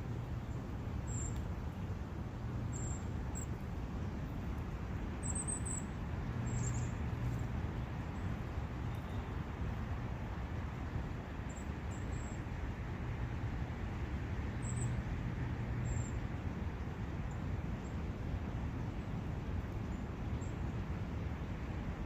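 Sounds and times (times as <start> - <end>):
small birds chirping: 5.2 - 7.5, 14.5 - 15.0.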